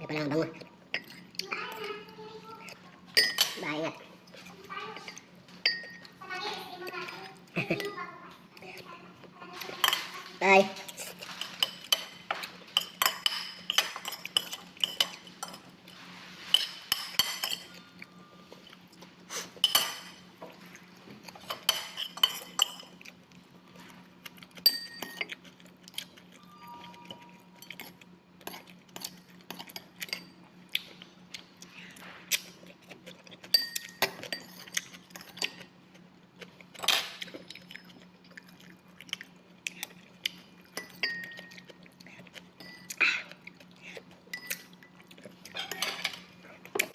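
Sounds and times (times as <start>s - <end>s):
cutlery clinking on a dish: 40.8s - 41.7s, 44.3s - 44.7s, 45.5s - 46.9s.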